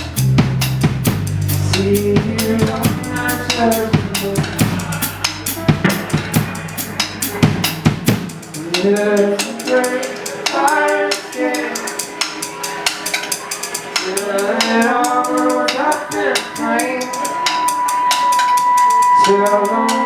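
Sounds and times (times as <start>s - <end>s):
sliding melody: 0.0s - 9.1s
drum kit: 0.0s - 20.0s.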